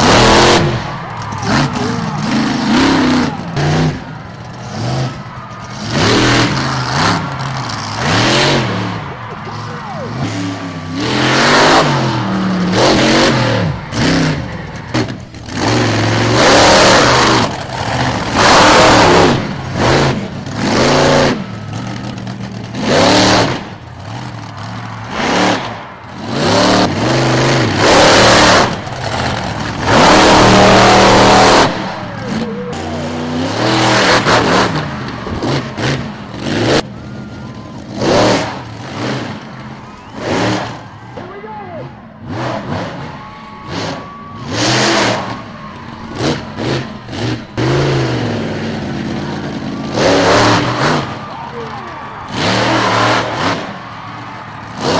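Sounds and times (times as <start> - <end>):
truck engine revving hard: 0.0 - 54.9.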